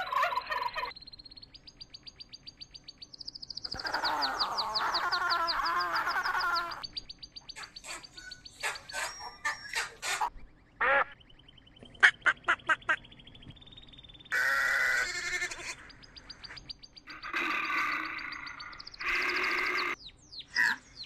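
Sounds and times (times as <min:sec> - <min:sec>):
duck quacking: 0:07.5 - 0:11.2, 0:12.0 - 0:13.0.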